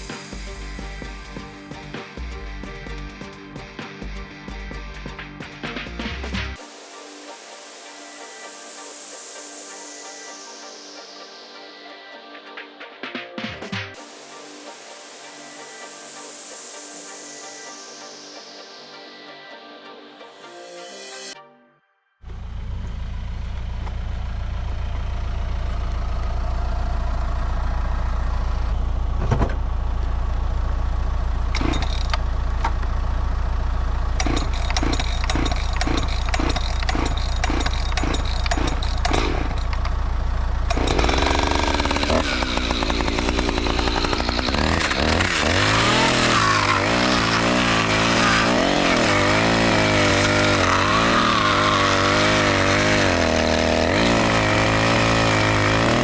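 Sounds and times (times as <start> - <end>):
diesel engine running: 22.2 - 56.0.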